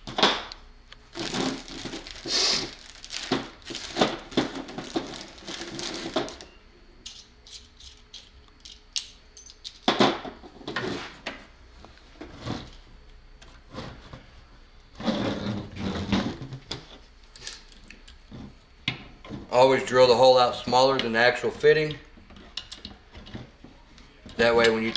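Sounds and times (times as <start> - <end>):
scraping and rustling: 1.1 - 6.5.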